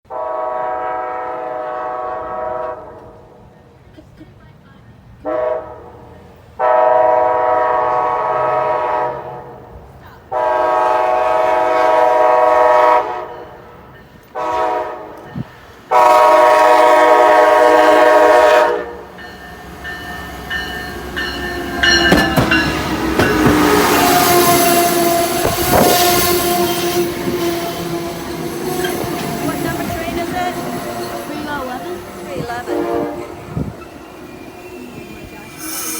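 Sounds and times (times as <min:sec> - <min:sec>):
train horn blasts: 0:00.1 - 0:03.6, 0:05.2 - 0:34.1
train wheels rumbling on rails: 0:07.2 - 0:35.9.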